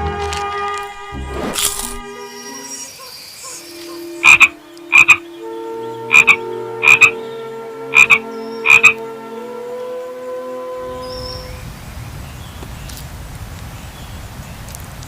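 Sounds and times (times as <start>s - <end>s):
frog croaking: 3.0s - 5.3s, 6.0s - 7.2s, 7.8s - 9.0s.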